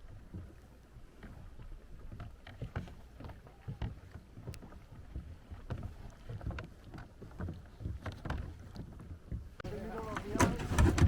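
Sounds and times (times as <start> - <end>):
paddle dipping in water: 0.0 - 11.0.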